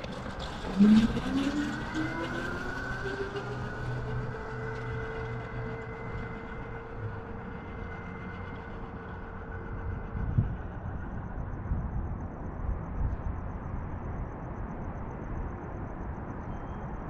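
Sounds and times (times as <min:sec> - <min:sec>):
electric motor whining: 0:00.0 - 0:10.6.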